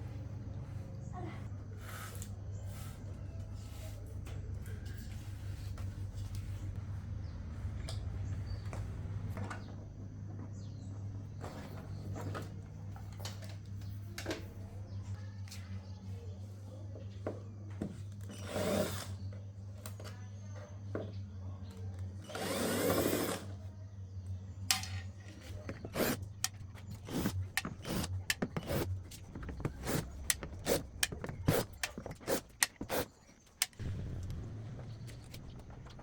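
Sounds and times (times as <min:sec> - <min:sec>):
electrical hum: 0:20.7 - 0:36.0
small power tool whirring: 0:22.2 - 0:23.5, 0:25.5 - 0:36.0
hard parts clicking and knocking: 0:24.7 - 0:36.0.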